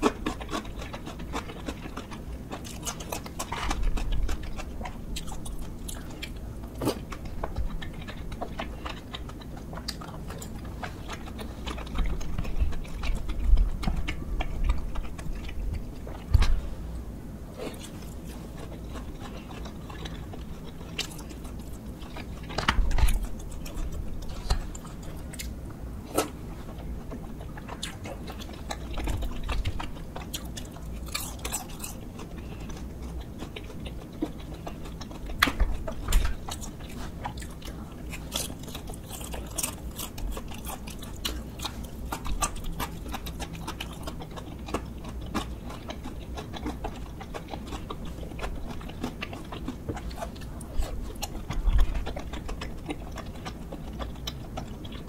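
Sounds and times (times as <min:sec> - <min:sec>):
person chewing: 0:00.0 - 0:55.0
sharp clicks and small crunches: 0:17.6 - 0:55.0.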